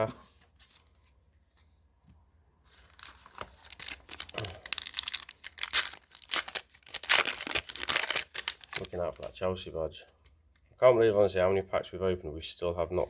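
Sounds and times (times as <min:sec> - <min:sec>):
card pack wrapper crinkling and ripping: 0:02.7 - 0:09.4.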